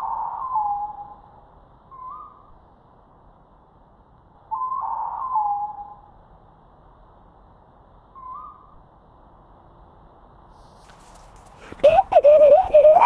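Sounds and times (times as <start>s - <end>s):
person imitating owl hoots: 11.6s - 13.0s.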